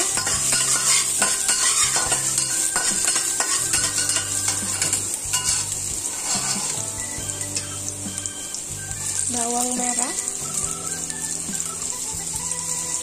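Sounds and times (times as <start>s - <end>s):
metal spatula scraping a pan: 0.0s - 7.8s
ginger sizzling in hot oil: 0.0s - 13.0s.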